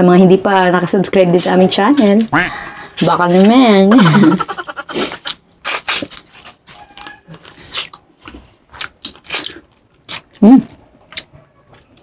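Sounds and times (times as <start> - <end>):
person chewing and crunching food: 4.9 - 12.0.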